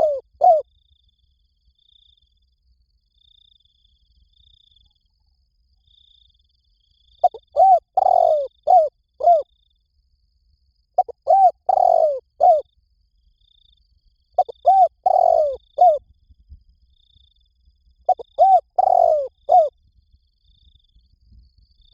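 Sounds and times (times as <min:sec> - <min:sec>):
dove cooing: 0:00.0 - 0:00.6, 0:07.2 - 0:09.4, 0:11.0 - 0:12.6, 0:14.4 - 0:16.0, 0:18.1 - 0:19.7.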